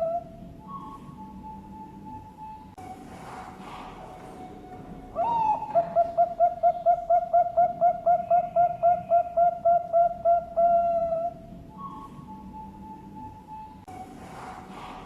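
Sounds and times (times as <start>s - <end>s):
dove cooing: 0.0s - 2.2s, 3.6s - 13.3s.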